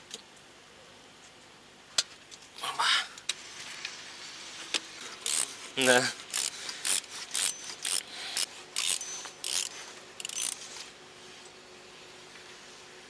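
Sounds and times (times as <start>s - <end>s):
torque wrench ratchet clicking: 5.2s - 5.5s, 6.3s - 10.6s.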